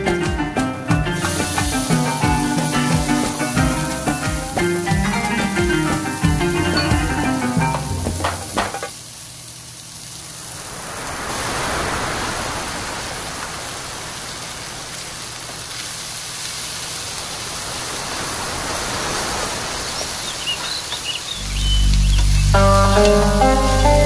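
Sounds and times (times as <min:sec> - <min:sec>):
peas sizzling in hot oil: 0:01.0 - 0:12.2, 0:14.5 - 0:18.1, 0:19.9 - 0:24.0.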